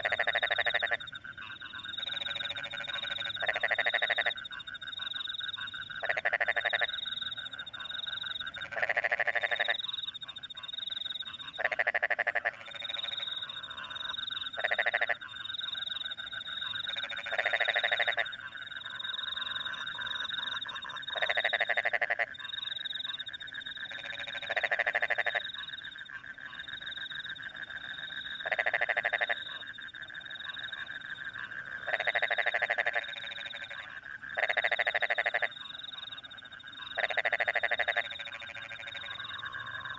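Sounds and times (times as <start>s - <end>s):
frogs croaking: 0.0s - 39.9s
crickets trilling: 34.4s - 39.9s.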